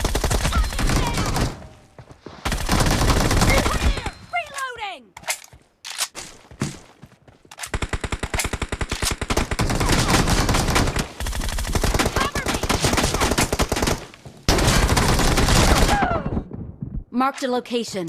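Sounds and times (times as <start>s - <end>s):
video game automatic gunfire: 0.0s - 1.6s, 2.5s - 4.0s, 7.7s - 16.0s.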